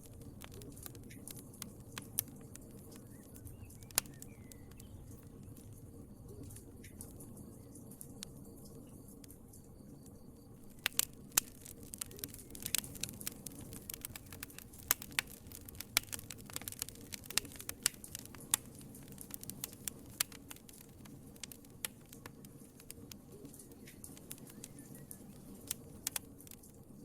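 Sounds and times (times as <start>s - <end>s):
low rustle of flame: 0.0s - 27.0s
wood fire crackling and popping: 0.0s - 27.0s.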